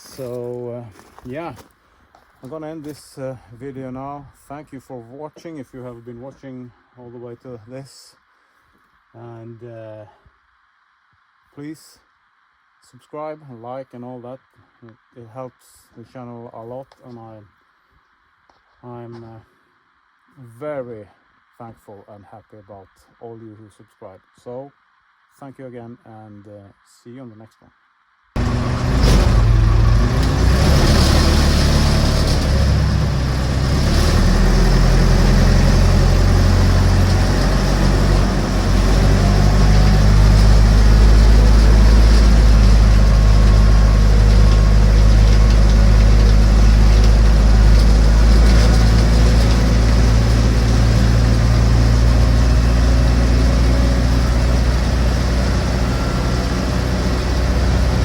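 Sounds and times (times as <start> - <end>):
tractor engine droning: 28.4 - 58.0.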